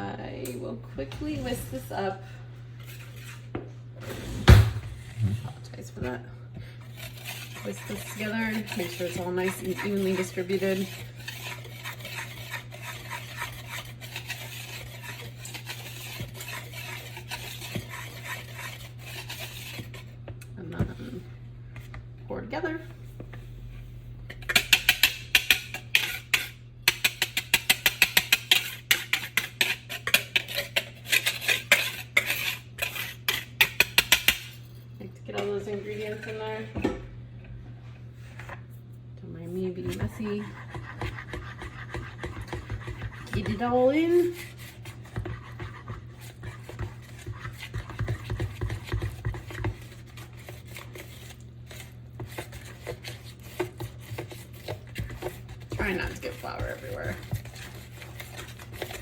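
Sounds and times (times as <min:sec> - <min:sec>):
steady low hum: 0:00.0 - 0:59.0
whisk clicking against bowl: 0:07.0 - 0:20.0, 0:39.9 - 0:59.0.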